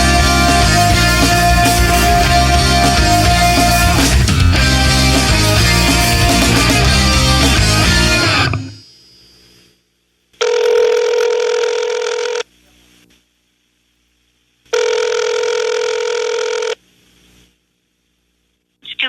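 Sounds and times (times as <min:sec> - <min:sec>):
band's last chord: 0:00.0 - 0:08.8
telephone ringing: 0:10.4 - 0:12.4, 0:14.7 - 0:16.8.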